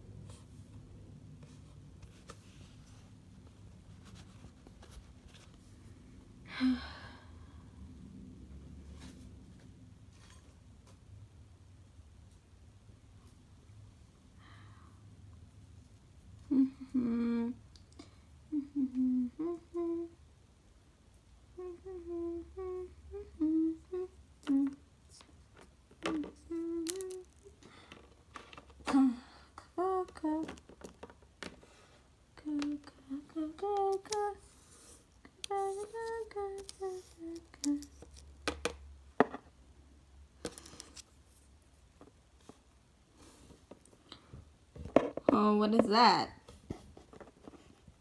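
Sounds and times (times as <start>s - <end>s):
faint room hum: 0.0s - 48.0s
person sighing: 6.5s - 7.6s
person humming a slow tune: 16.4s - 20.3s, 21.5s - 24.9s, 26.0s - 27.6s, 28.8s - 30.6s, 32.4s - 38.0s.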